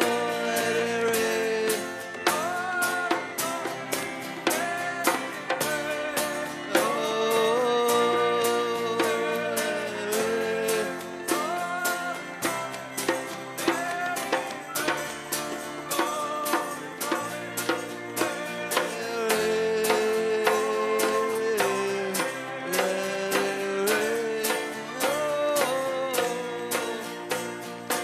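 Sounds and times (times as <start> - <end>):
guitar: 0.0 - 28.0
quick drum beat: 0.0 - 28.0
worship band music: 0.0 - 28.0.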